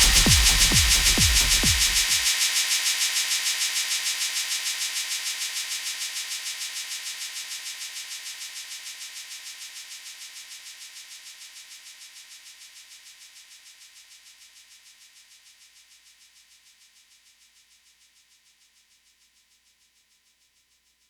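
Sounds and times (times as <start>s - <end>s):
hissing rhythmic pulses: 0.0s - 2.3s
techno kick drum and bass: 0.0s - 2.3s.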